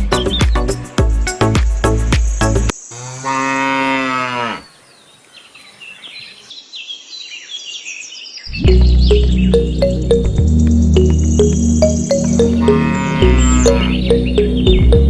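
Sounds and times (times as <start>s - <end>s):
background music: 0.0s - 2.7s, 8.7s - 15.0s
cow mooing: 3.2s - 4.6s.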